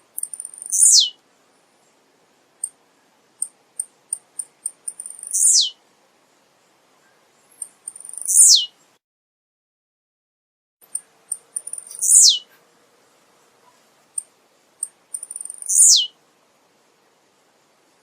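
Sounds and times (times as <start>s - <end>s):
bird singing high ticks: 0.1s - 1.2s, 2.6s - 2.8s, 3.4s - 5.8s, 7.0s - 8.7s, 10.8s - 12.6s, 14.1s - 16.1s.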